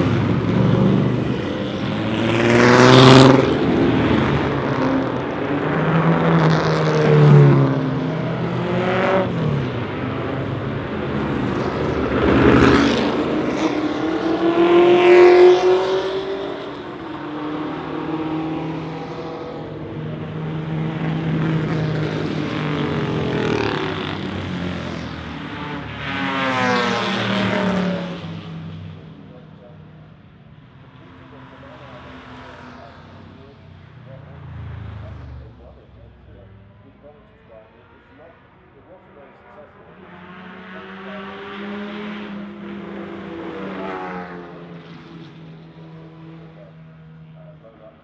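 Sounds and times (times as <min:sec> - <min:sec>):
racing cars passing: 0:00.0 - 0:48.0.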